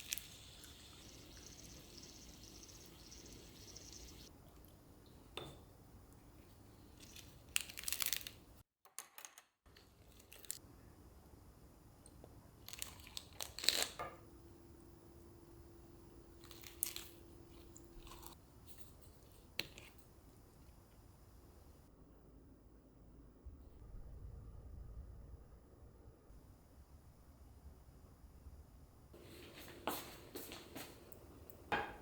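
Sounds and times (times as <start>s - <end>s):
steady low hum: 0.0s - 6.9s, 14.3s - 32.0s
crunching and rustling: 16.4s - 20.0s.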